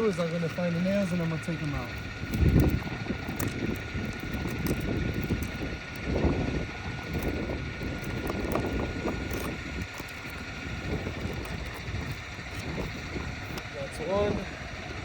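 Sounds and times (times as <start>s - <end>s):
wind rumbling on microphone: 0.0s - 15.0s
pry tool clicks and scrapes: 0.2s - 13.7s.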